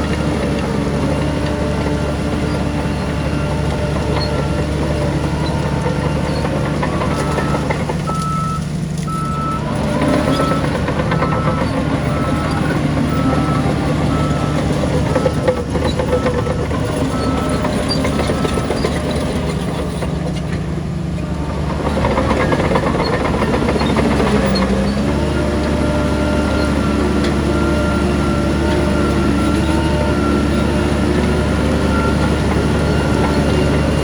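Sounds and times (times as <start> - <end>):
heavy machinery diesel engine: 0.0 - 34.0.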